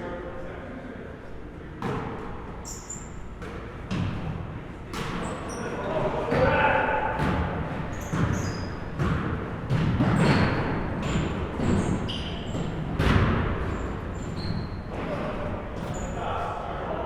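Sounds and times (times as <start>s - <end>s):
sneaker squeaks: 1.8s - 16.4s
basketball bouncing: 7.2s - 14.6s.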